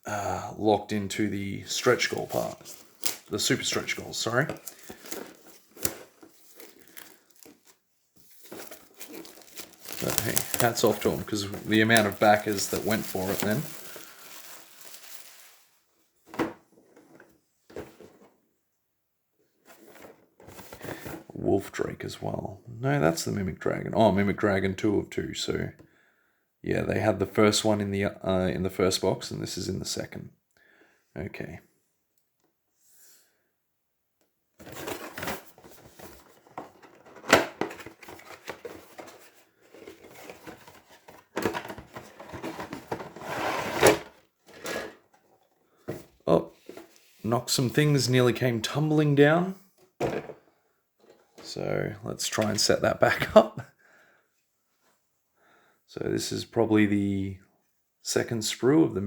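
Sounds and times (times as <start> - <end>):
packaging rustling: 1.8 - 15.8, 34.6 - 45.4.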